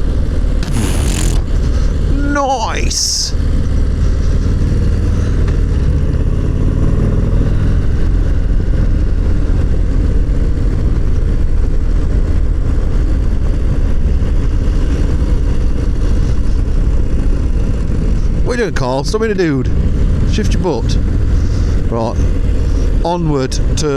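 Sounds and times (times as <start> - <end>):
motorcycle engine running: 0.6 - 1.8.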